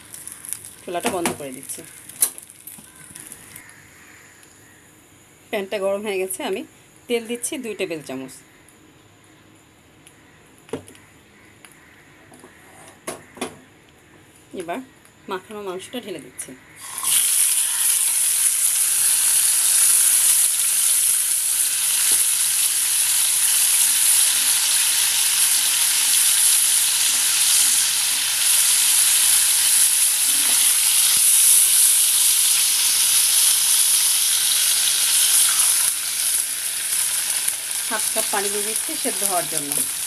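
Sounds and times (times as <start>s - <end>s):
chicken sizzling in hot oil: 0.0s - 3.8s, 16.8s - 40.0s.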